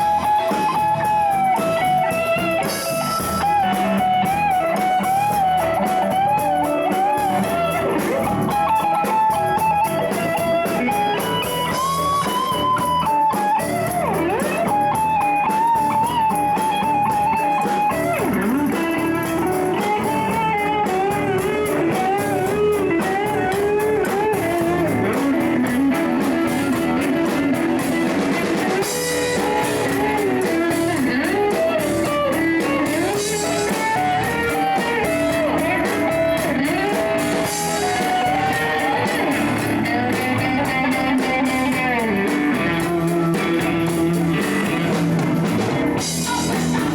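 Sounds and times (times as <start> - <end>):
blues band accompaniment: 0.0 - 46.9
electric guitar bending lines: 0.0 - 46.9.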